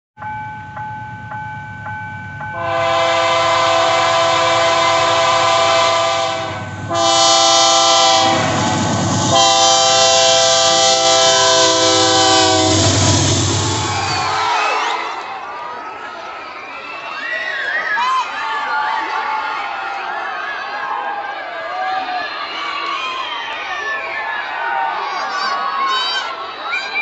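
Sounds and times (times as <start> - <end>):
locomotive rumble: 0.6 - 15.3
locomotive air horn blasts: 2.6 - 15.2.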